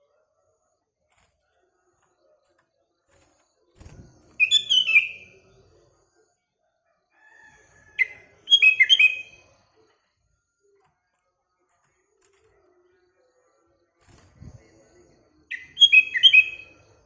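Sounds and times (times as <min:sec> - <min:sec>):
bulbul calling: 0:15.5 - 0:16.6.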